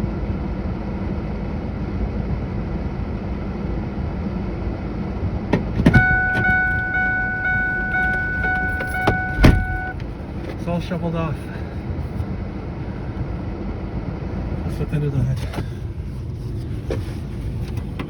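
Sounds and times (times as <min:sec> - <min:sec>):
low steady rumble: 0:00.0 - 0:18.0
electronic warning chime: 0:05.9 - 0:10.0.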